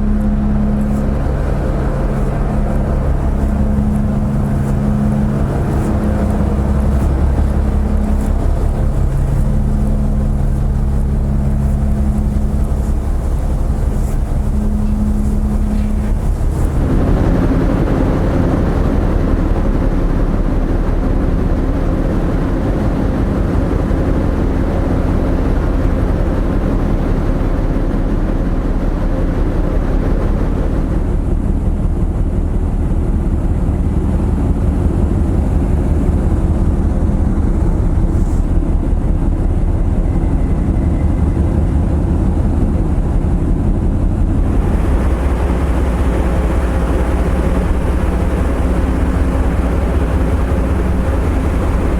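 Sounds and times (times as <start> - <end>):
rushing noise: 0.0 - 26.3, 43.0 - 51.9
ship engines deep rumble: 0.0 - 51.9.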